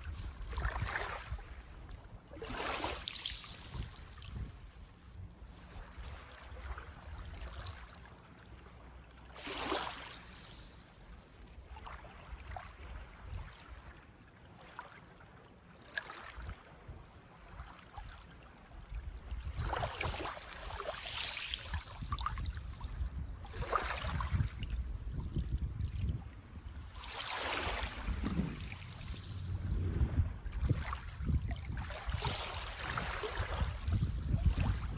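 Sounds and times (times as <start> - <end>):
waves breaking on beach: 2.3 - 4.2, 9.4 - 11.0, 19.6 - 25.0, 26.6 - 34.9
low rumble: 27.8 - 31.7.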